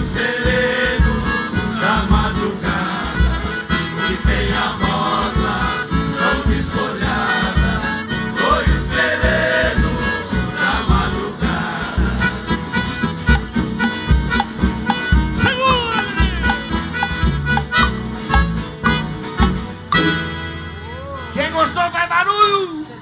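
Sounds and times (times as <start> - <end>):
voices singing together: 0.0 - 12.9
steady bass beat: 0.0 - 20.0
country music orchestra: 0.0 - 23.0.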